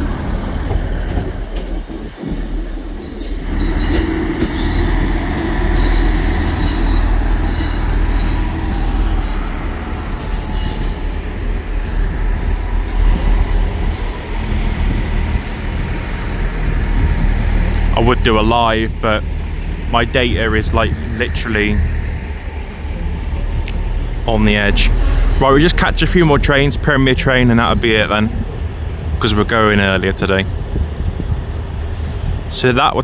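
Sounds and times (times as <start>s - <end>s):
train rumble: 0.0s - 33.0s
high wheel squeal: 2.9s - 28.6s.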